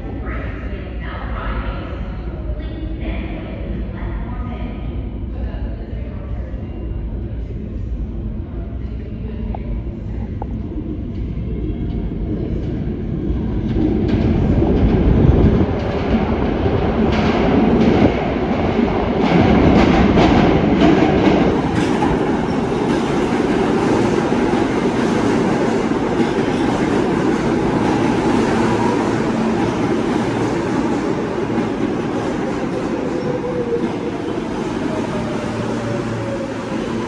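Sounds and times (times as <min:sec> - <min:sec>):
subway train rumbling: 0:00.0 - 0:37.0.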